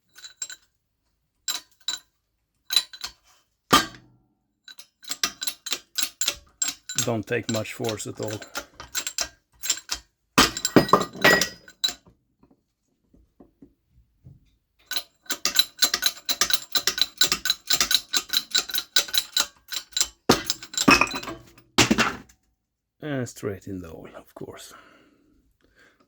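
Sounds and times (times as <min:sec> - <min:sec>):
metal parts clinking: 0:02.7 - 0:04.0, 0:04.7 - 0:12.0, 0:14.8 - 0:22.1.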